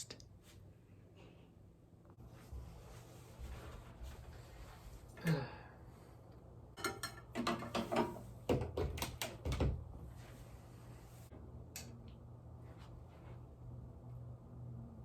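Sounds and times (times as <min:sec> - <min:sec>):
low steady hum: 0:00.0 - 0:15.0
objects knocking and clunking: 0:06.8 - 0:09.9.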